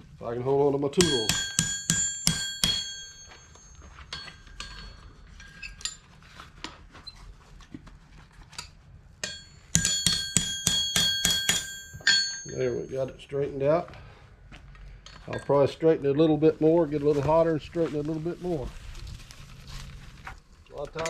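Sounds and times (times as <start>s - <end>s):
hammer ringing on steel anvil: 1.0s - 5.6s, 9.2s - 13.2s.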